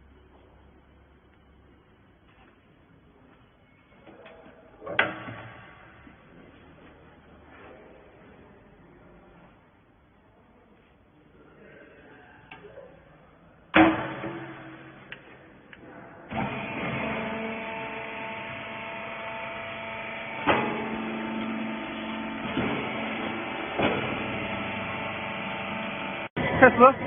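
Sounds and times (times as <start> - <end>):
loud metal clang: 13.8 - 15.1
electric motor and hydraulic pump hum: 16.3 - 27.0.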